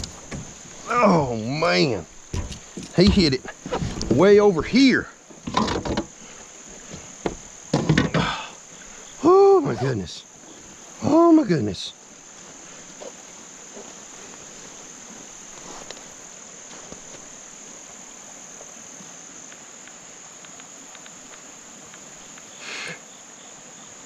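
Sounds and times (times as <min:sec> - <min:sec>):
crickets chirping: 0:00.0 - 0:24.0
faint ticks: 0:15.5 - 0:17.9, 0:19.4 - 0:22.6.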